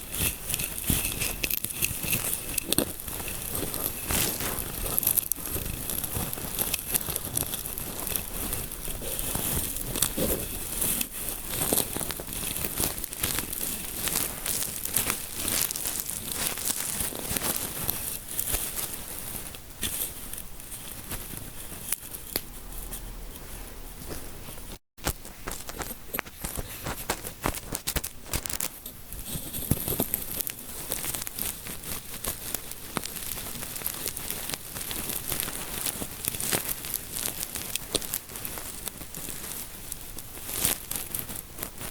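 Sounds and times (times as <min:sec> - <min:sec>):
fingers scratching through hair: 0:00.0 - 0:41.9.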